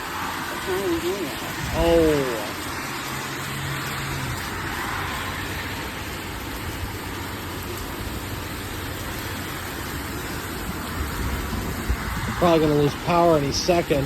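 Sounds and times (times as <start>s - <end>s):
strong wind rushing: 0.0s - 7.2s, 10.0s - 14.0s
wind gusts buffeting microphone: 0.0s - 14.0s.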